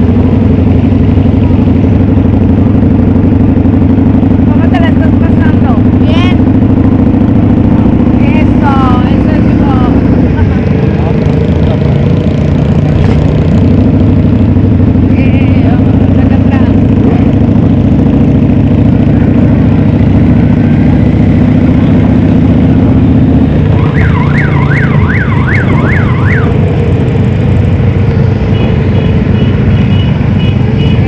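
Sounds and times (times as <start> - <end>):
motorcycle engines running: 0.0 - 31.0
electronic siren: 23.6 - 26.8.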